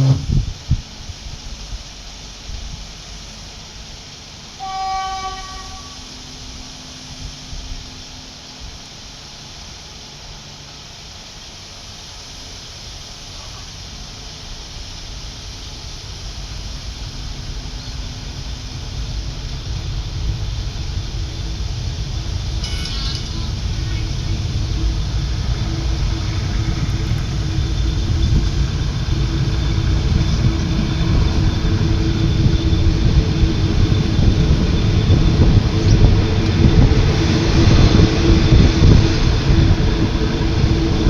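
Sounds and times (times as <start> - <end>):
train horn toot: 0.0 - 0.4, 4.5 - 8.4, 22.6 - 24.0
train engine and wheels rumbling: 0.0 - 41.0.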